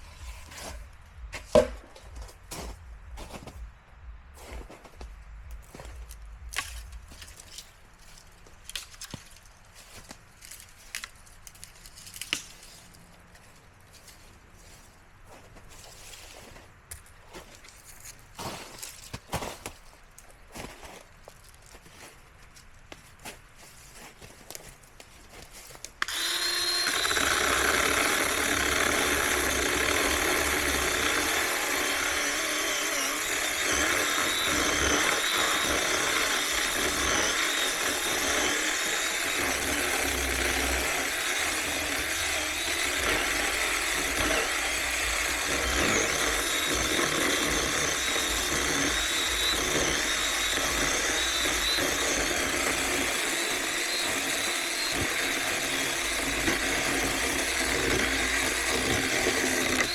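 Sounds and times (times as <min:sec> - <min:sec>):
electric chainsaw cutting wood: 0:26.0 - 0:59.9.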